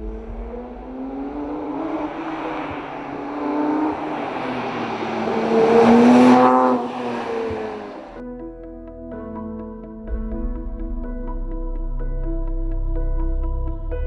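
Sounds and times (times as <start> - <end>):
car engine revving: 0.0 - 8.2.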